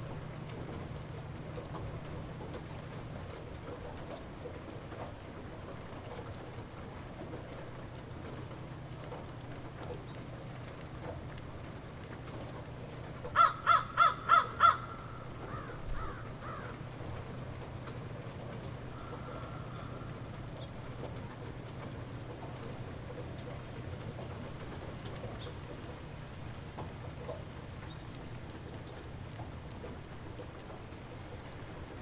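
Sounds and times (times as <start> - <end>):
light rain: 0.0 - 32.0
bird calling: 13.4 - 16.8, 18.9 - 20.2.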